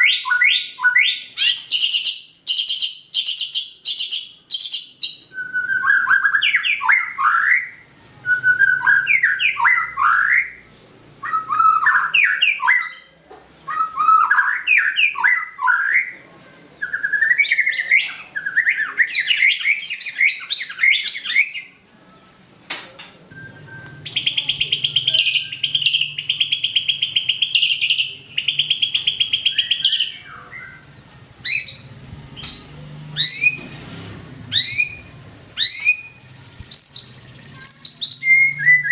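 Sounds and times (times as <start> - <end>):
bird singing fluty whistles: 0.0 - 13.1, 13.7 - 16.2, 16.8 - 21.8, 23.3 - 33.7, 34.5 - 38.9
bird harsh buzzing trills: 23.9 - 38.9.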